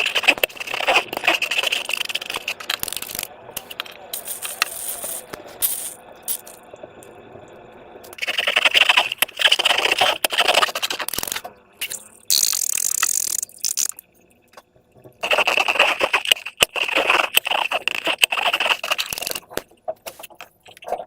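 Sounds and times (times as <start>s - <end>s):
slime crackling and clicking: 8.1s - 14.0s, 15.2s - 20.9s.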